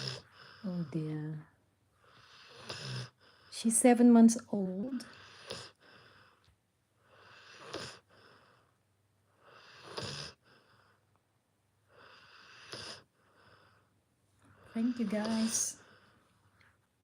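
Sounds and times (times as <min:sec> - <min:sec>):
puppy snoring: 0:00.0 - 0:01.4, 0:02.0 - 0:08.7, 0:09.3 - 0:11.0, 0:11.9 - 0:13.9, 0:14.5 - 0:16.2.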